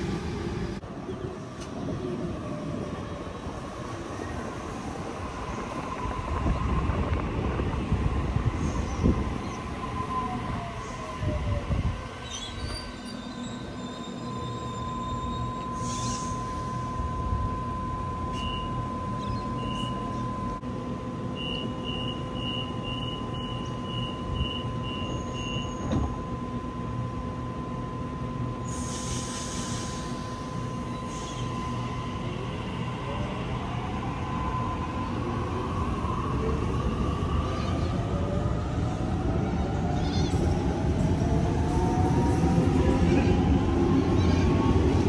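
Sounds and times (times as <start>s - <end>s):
train rising whines: 0.0s - 45.0s.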